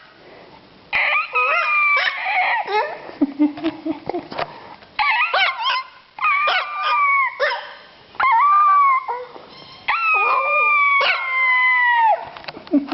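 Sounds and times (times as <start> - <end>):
puppy howling and yelping: 1.0 - 3.0, 5.0 - 12.4.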